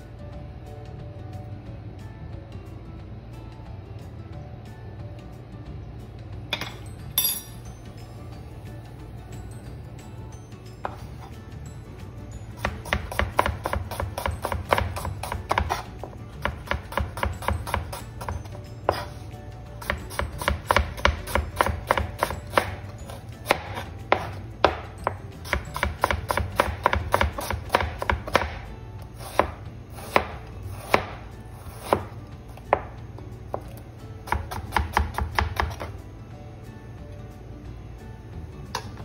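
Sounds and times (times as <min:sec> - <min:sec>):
knife striking cutting board: 0:12.6 - 0:19.2, 0:19.8 - 0:28.6, 0:29.2 - 0:33.7.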